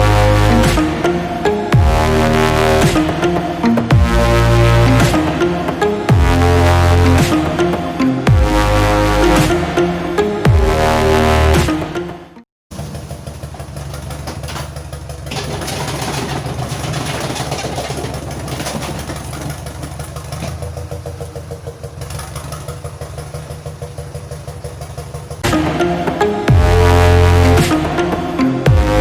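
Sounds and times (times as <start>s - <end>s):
engine idling: 12.7s - 29.0s.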